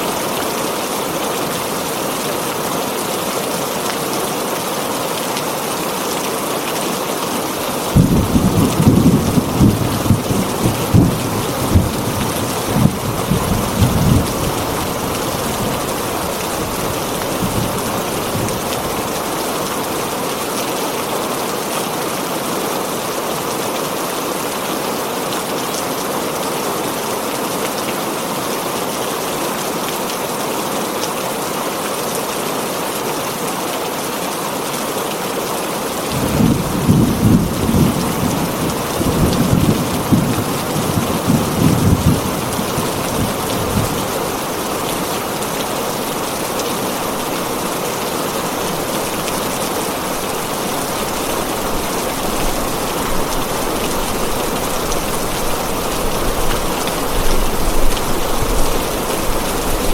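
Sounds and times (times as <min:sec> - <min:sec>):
heavy rain on a tin roof: 0:00.0 - 0:59.9
thunder rumbling: 0:08.0 - 0:18.6, 0:36.2 - 0:44.8, 0:48.4 - 0:59.9.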